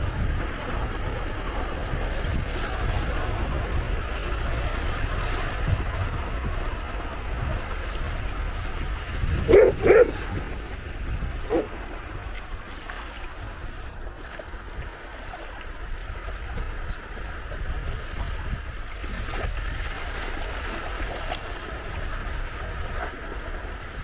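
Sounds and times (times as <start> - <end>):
sea waves washing on shore: 0.0 - 24.0
wind: 0.0 - 24.0
animal calls: 9.4 - 10.6, 11.4 - 11.8.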